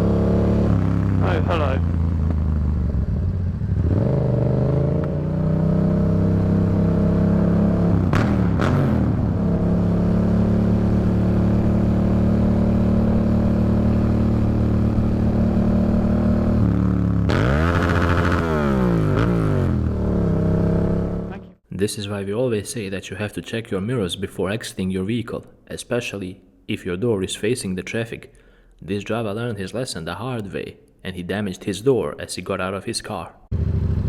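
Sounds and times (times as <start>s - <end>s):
vehicle engine running: 0.0s - 21.5s, 33.5s - 34.0s.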